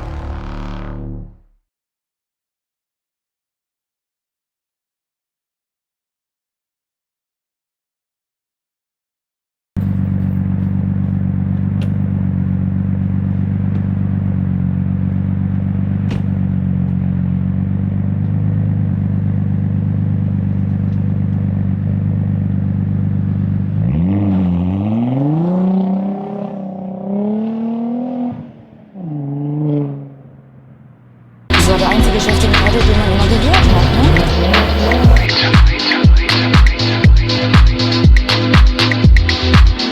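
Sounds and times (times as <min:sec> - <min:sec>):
car engine idling and revving: 0:00.0 - 0:01.4, 0:09.8 - 0:35.5.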